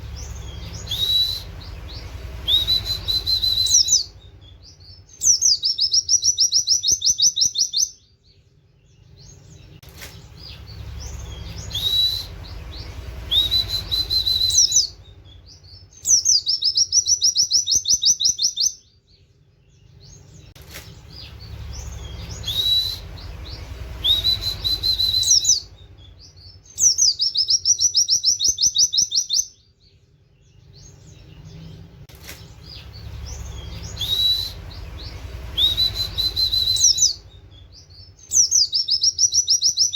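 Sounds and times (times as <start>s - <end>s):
bird rising whistles: 0.2s - 4.2s, 11.1s - 15.1s, 21.7s - 25.8s, 33.2s - 37.4s.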